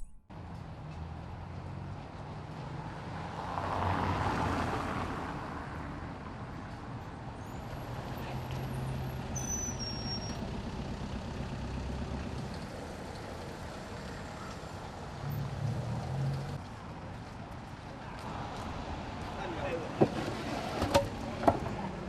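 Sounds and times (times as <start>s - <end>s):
vehicle passing: 0.8s - 6.0s, 12.0s - 16.7s
vehicle engine running: 10.4s - 16.6s.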